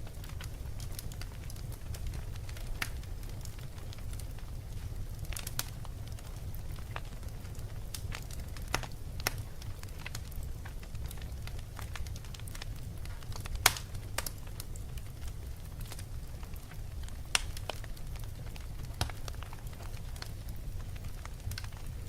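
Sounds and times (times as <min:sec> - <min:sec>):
wood fire crackling: 0:00.0 - 0:22.0
sharp pops and snaps: 0:13.1 - 0:14.3, 0:17.3 - 0:17.8.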